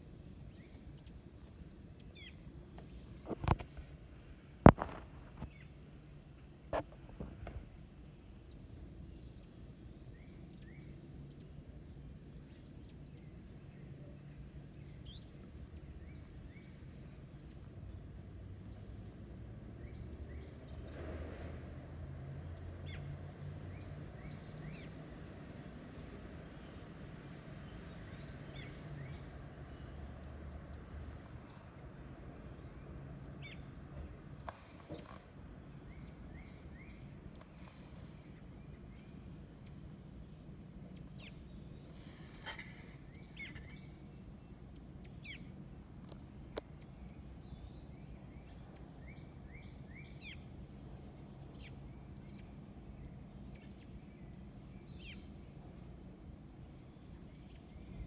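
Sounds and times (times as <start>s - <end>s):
faint low background rumble: 0.0s - 58.0s
soft low bird chirps: 32.9s - 45.5s.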